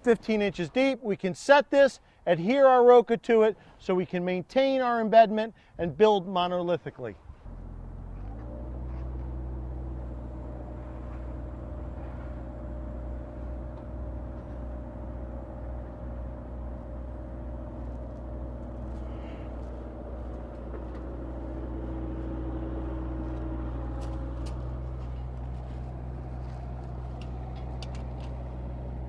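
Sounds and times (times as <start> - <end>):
construction equipment engine running: 7.4 - 29.0.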